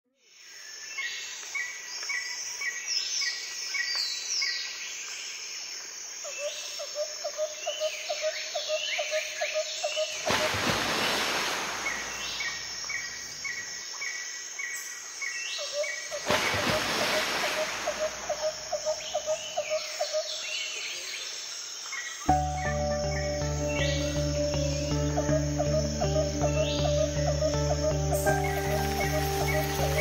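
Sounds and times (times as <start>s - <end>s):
birds chirping: 22.2s - 30.0s.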